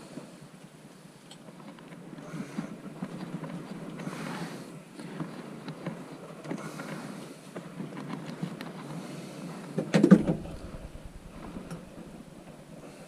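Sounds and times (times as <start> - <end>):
knocks and scrapes: 10.0 - 12.6.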